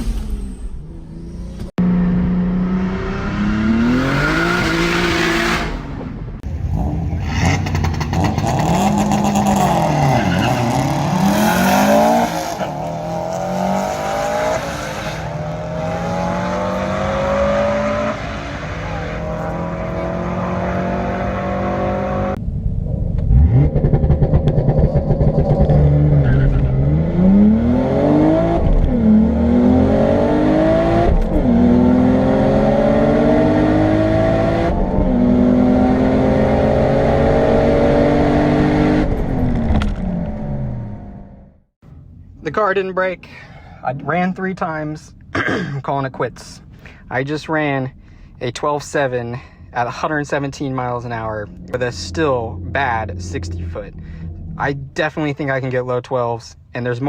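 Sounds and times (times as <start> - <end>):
car engine accelerating hard: 0.9 - 22.5, 23.2 - 41.4, 50.8 - 55.9.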